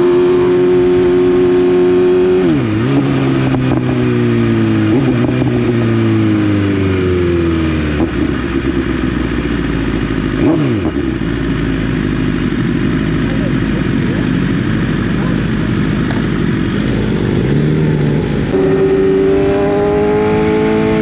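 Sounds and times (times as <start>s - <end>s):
motorcycle engine revving: 0.0s - 21.0s
wind and road noise: 0.0s - 21.0s.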